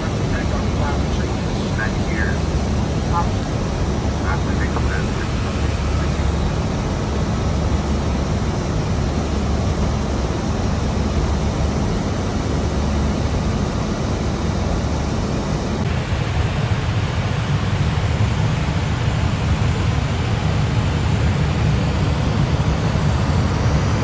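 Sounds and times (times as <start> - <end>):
cockpit air noise hiss: 0.0 - 6.3.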